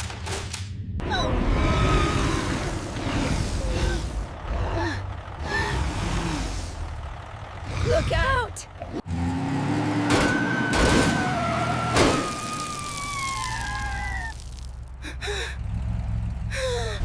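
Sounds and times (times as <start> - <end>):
low vehicle-like rumble: 0.8 - 9.1.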